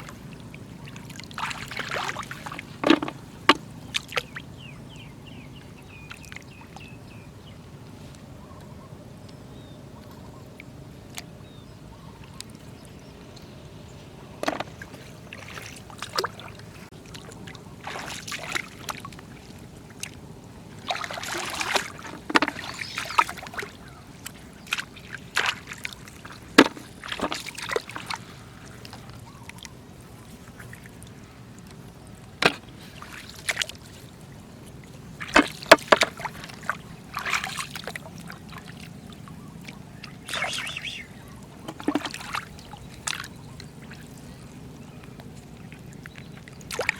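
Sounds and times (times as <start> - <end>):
floodwater splashing: 0.0 - 7.2, 14.2 - 46.9
sharp knocks: 2.8 - 3.6.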